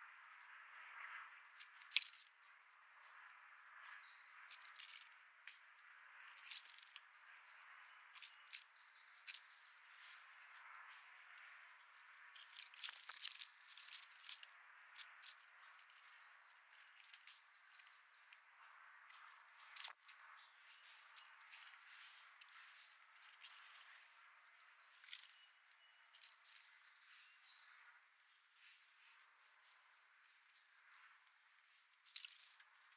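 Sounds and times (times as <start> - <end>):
birds pecking at a seed feeder: 1.6 - 2.5, 3.8 - 5.2, 6.3 - 7.1, 7.8 - 10.7, 11.3 - 27.2, 30.4 - 32.9.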